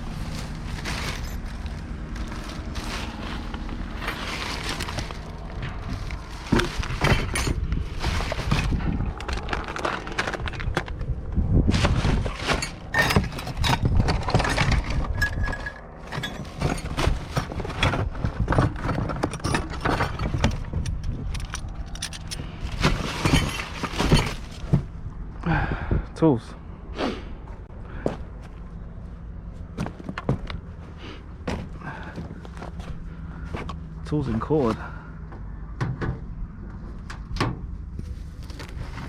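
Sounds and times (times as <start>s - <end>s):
scrap metal clinking and clattering: 0.0s - 11.0s, 11.7s - 24.9s.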